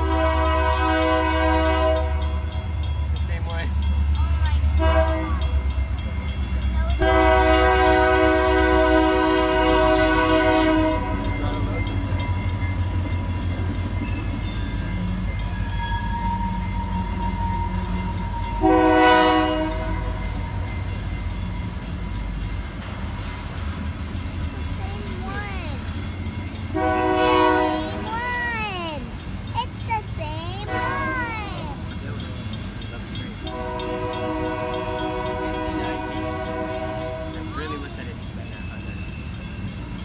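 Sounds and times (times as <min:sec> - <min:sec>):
locomotive air horn blasts: 0:00.0 - 0:02.3, 0:04.8 - 0:05.4, 0:07.0 - 0:11.2, 0:16.0 - 0:20.3, 0:26.7 - 0:28.0, 0:33.5 - 0:37.5
freight train rumbling: 0:00.0 - 0:40.0.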